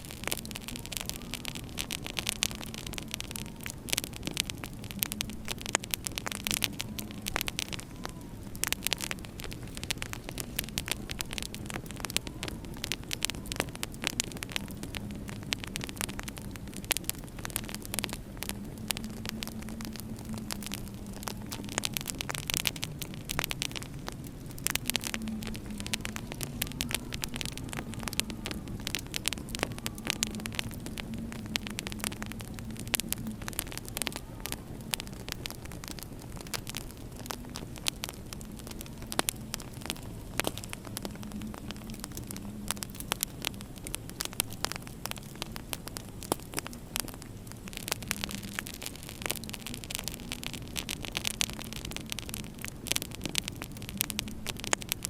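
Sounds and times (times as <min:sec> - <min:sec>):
wind moaning: 0:00.0 - 0:55.0
wood fire crackling: 0:00.0 - 0:55.0.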